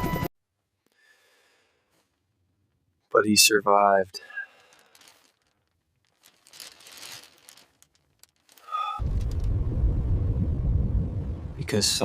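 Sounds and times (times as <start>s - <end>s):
loud deep rumble: 9.0s - 12.0s.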